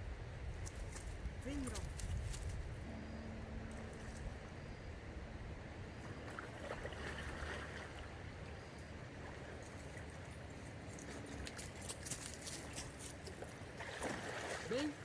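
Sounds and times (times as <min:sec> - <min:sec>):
flowing river water: 0:05.5 - 0:15.0.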